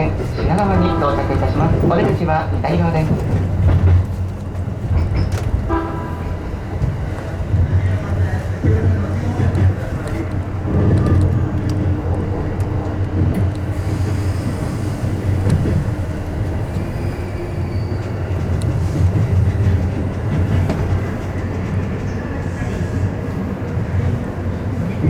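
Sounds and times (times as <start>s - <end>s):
train rumbling on rails: 0.0s - 25.0s
train wheel clicks: 0.1s - 5.6s, 8.6s - 16.9s, 18.0s - 22.9s.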